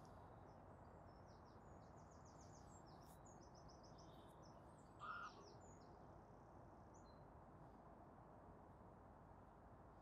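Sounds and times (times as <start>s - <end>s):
faint songbird chirping: 0.0s - 6.0s, 6.8s - 7.3s
outdoor background hiss: 0.0s - 10.0s.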